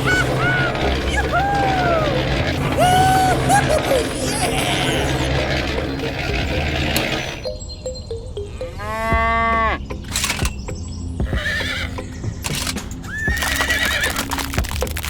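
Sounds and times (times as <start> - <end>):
cow mooing: 0.0 - 7.5
background music: 0.0 - 15.0.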